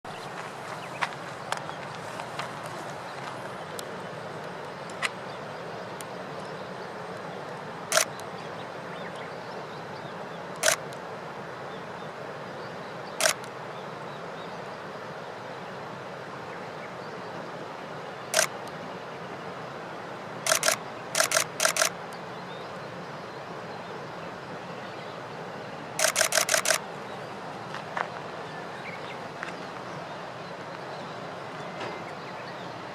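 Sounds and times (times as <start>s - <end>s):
steady background hiss: 0.1s - 32.9s
camera shutter clicks: 7.9s - 8.2s, 10.6s - 10.9s, 13.2s - 13.5s, 18.4s - 18.6s, 20.5s - 22.0s, 26.0s - 26.8s.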